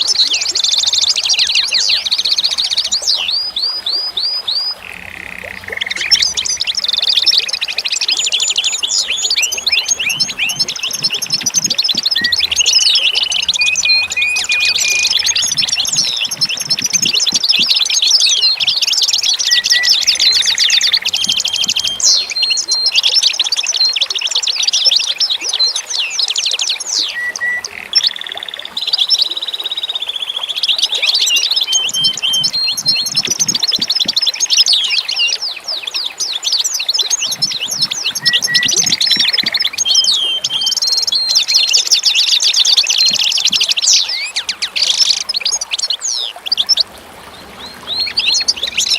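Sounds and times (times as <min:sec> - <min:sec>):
songbirds chirping and trilling: 0:00.0 - 0:48.9.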